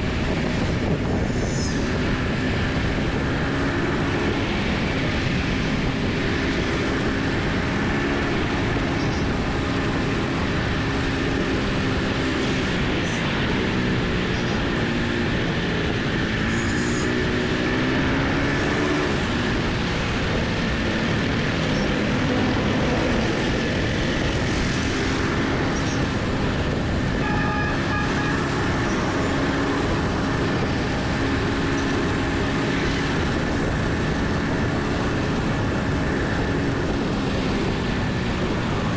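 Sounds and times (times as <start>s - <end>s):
motorcycle engine revving: 0.0s - 38.9s
road traffic: 0.0s - 38.9s
wind rumble on microphone: 0.0s - 38.9s
vehicle horn: 27.2s - 29.3s.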